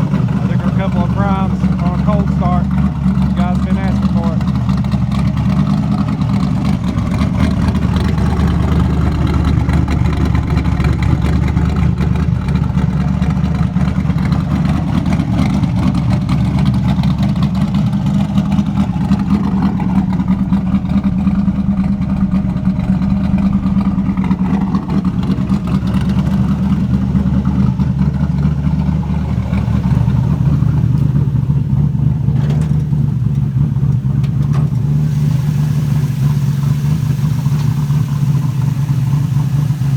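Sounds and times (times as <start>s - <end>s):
car engine idling with lopey note: 0.0s - 39.9s.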